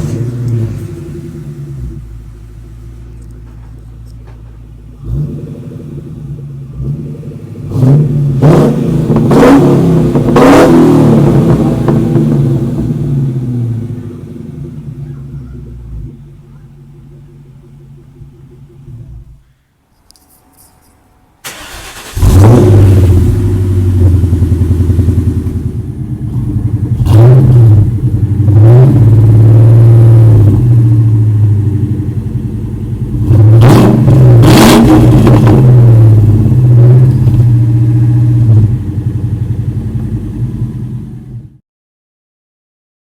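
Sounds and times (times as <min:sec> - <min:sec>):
engine revving: 0:00.0 - 0:02.3, 0:04.9 - 0:16.4, 0:21.4 - 0:41.0
car engine starting and idling: 0:00.0 - 0:19.8, 0:21.0 - 0:41.6.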